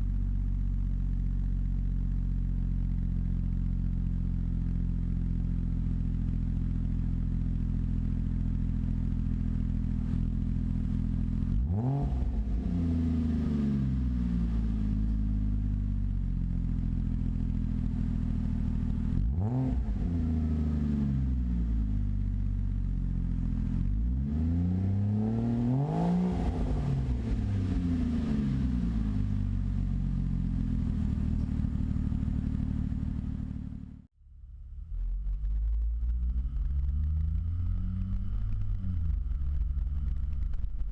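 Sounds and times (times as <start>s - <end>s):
car engine idling and revving: 0.0s - 40.9s.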